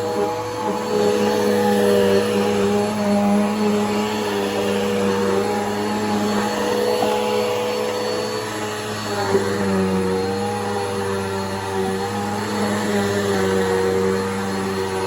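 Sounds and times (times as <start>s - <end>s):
upright vacuum cleaner running: 0.0s - 15.0s.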